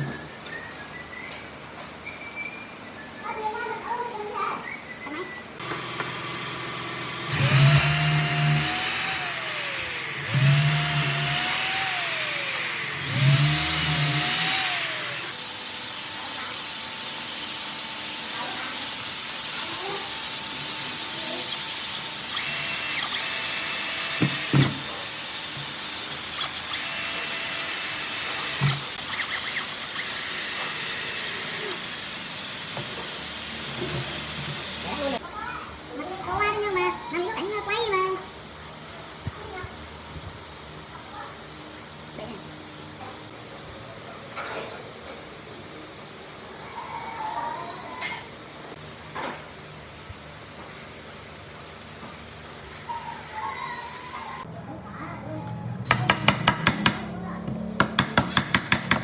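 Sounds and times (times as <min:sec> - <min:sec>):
power tool motor whirring: 0:05.6 - 0:35.2.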